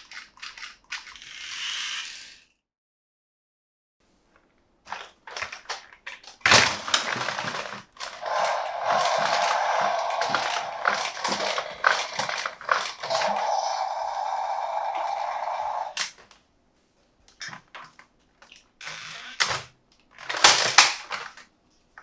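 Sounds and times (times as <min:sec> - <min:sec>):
packaging crinkling and crackling: 0:20.1 - 0:21.5.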